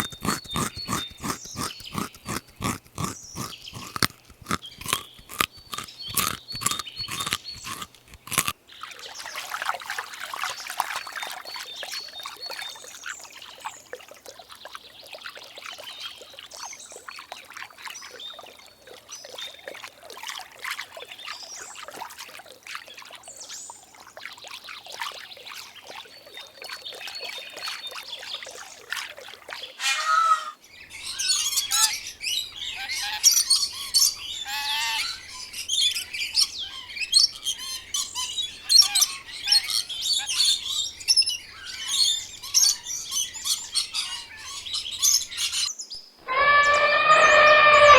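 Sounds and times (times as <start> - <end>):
birds chirping: 0.0 - 8.5, 46.2 - 47.9
rustling crackly noise: 0.0 - 8.5
birds squawking: 29.8 - 30.6, 46.3 - 47.9.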